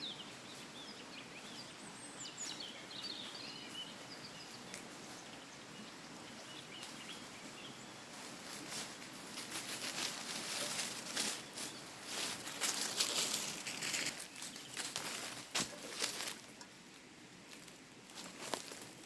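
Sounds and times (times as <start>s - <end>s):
outdoor background hiss: 0.0s - 19.0s
small birds chirping: 0.0s - 19.0s
crunching rustling crackles: 6.7s - 19.0s.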